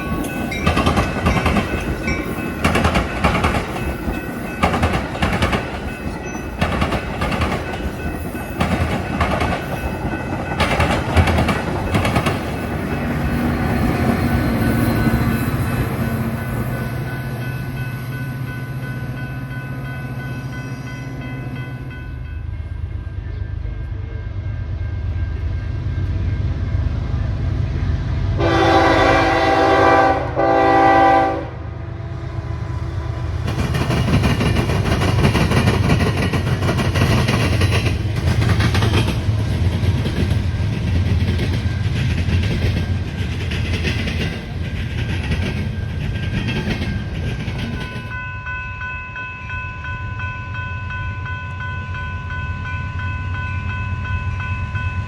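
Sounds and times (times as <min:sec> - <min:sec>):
train cars clattering over rails: 0:00.0 - 0:17.8, 0:33.4 - 0:48.4
train horn blasts: 0:28.4 - 0:32.2.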